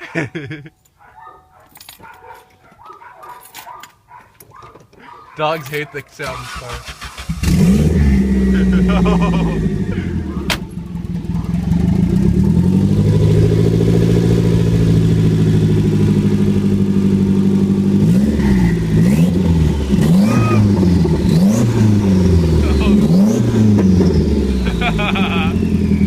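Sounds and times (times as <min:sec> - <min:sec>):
car engine revving: 0:06.3 - 0:26.0.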